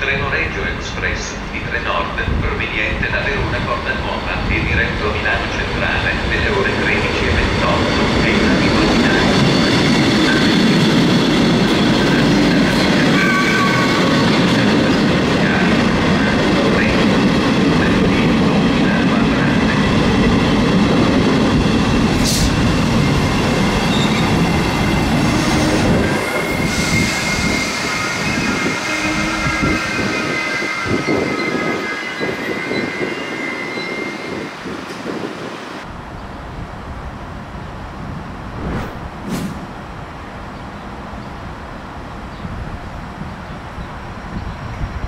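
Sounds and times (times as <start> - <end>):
train wheels rumbling on rail: 0.0 - 36.0.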